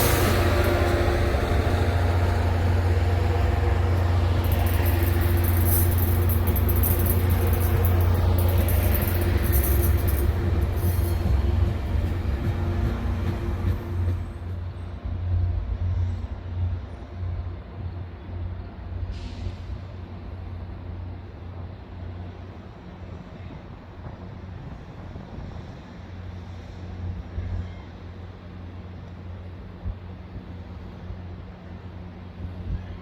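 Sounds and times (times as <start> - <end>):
train rumbling: 0.0 - 33.0
air brake hiss: 19.1 - 19.9.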